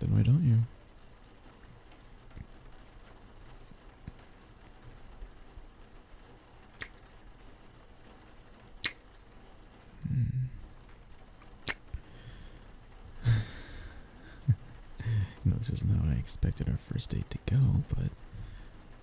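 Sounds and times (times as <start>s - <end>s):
wet lip smacks kissing: 6.8s - 7.1s, 8.8s - 9.1s, 11.6s - 12.0s
man murmuring: 10.0s - 10.7s, 13.2s - 18.2s.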